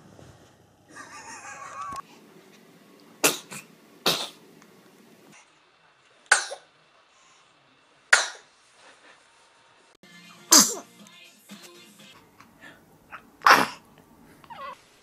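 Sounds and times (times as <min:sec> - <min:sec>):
babies sneezing: 0:13.4 - 0:13.8.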